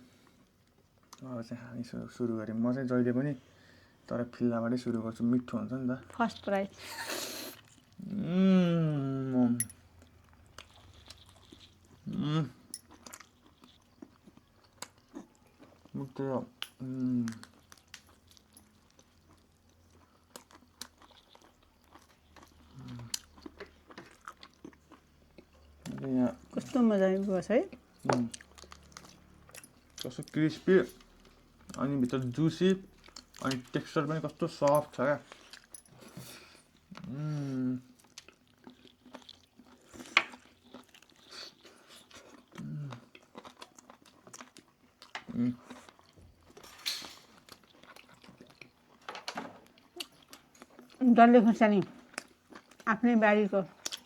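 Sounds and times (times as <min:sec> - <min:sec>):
chewing crispy chicken: 0:04.6 - 0:54.0
person humming: 0:08.0 - 0:09.6, 0:12.1 - 0:12.6.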